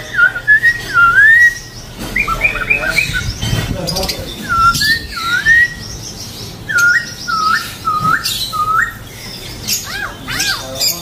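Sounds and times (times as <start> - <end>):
bird whistling hooked notes: 4.3 - 5.9, 6.7 - 9.0
faint high bird chirps: 4.3 - 11.0.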